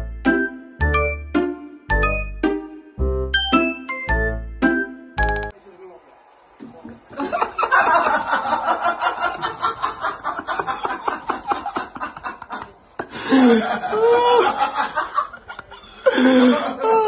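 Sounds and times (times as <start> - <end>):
person giggling: 10.6 - 14.7, 15.3 - 17.0.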